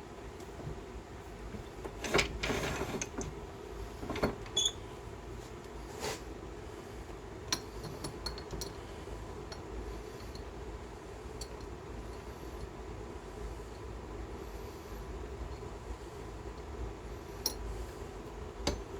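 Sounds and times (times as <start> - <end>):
steady low hum: 0.0 - 18.9
rustle or scrape: 5.4 - 6.3.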